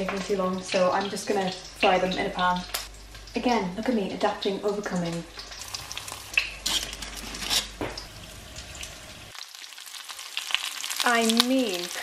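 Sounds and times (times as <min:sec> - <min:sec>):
cauliflower sizzling in oil: 0:04.4 - 0:12.0.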